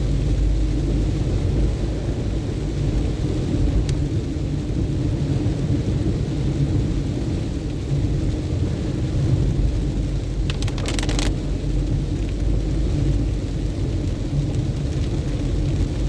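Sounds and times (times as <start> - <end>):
car driving on wet road: 0.0 - 16.0
crackling burst: 10.4 - 11.4.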